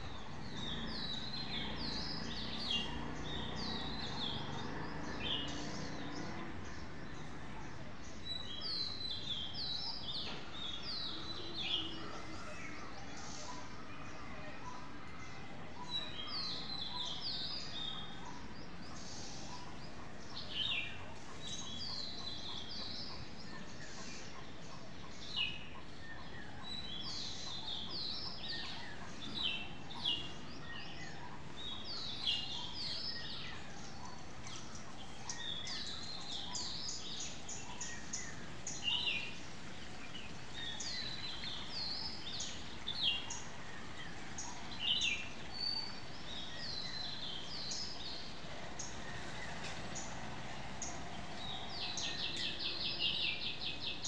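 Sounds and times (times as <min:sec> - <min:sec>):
birds chirping: 0:00.0 - 0:54.0
steady background hiss: 0:23.4 - 0:54.0.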